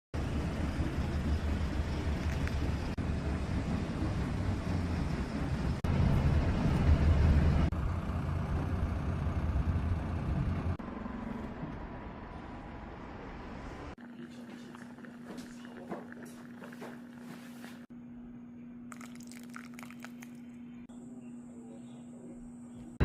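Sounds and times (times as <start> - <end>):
vehicle engine and road noise: 0.2 - 14.0.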